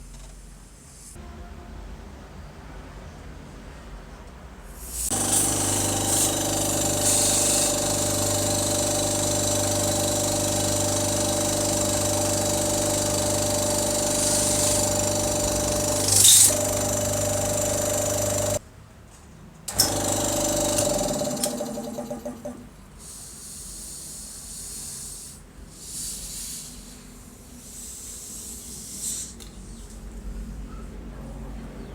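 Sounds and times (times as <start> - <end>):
loud hiss of air: 4.8 - 10.3, 14.0 - 16.4, 22.9 - 29.5
air compressor running: 4.8 - 18.6, 19.7 - 27.0.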